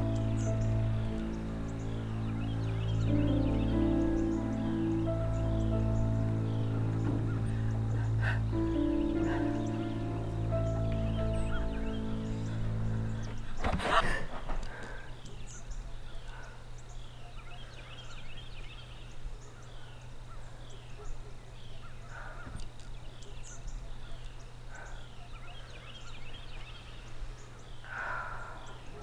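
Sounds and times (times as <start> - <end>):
high descending bird chirp: 0.0 - 13.7
steady low hum: 0.0 - 29.0.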